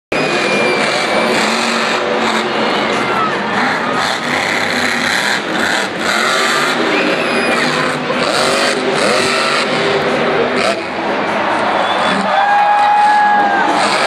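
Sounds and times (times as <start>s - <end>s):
monster truck engine revving: 0.1s - 14.0s.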